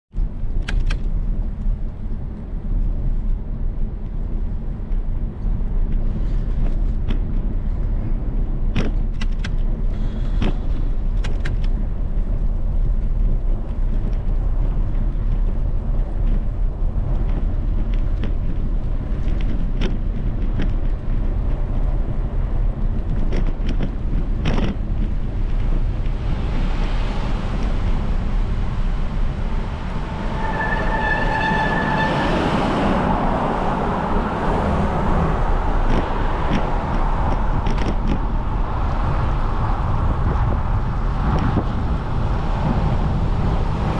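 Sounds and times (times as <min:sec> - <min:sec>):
bicycle road noise: 0:00.1 - 0:43.9
wind rumble: 0:00.1 - 0:43.9
sharp knocks and clicks: 0:08.7 - 0:09.7, 0:19.2 - 0:21.0, 0:23.0 - 0:25.1, 0:35.8 - 0:38.3.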